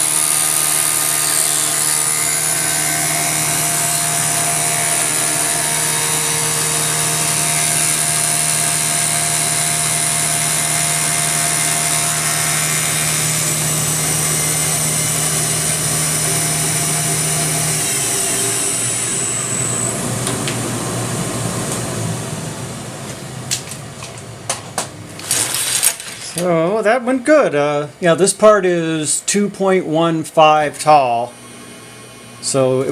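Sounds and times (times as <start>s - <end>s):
low hum: 0.0s - 25.5s
milling machine running: 0.0s - 26.5s, 30.8s - 32.9s.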